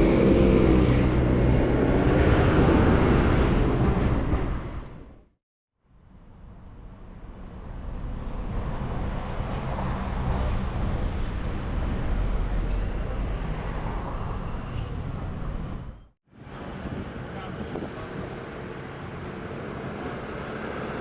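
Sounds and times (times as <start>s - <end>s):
wind on microphone: 16.4s - 18.8s.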